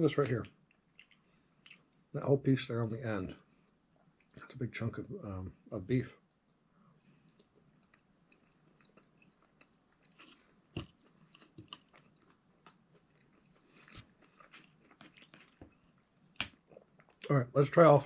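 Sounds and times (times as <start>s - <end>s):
faint wet chewing: 0.2s - 2.1s, 6.3s - 17.3s.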